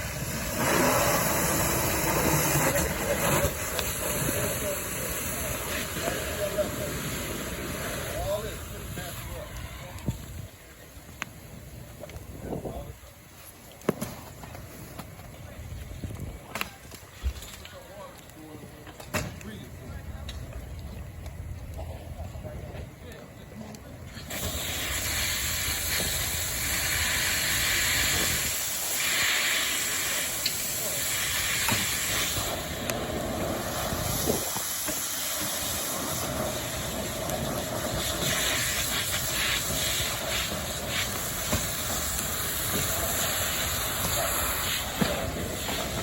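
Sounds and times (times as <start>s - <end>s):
hose spray and steam hissing: 0.0s - 10.4s, 24.1s - 46.0s.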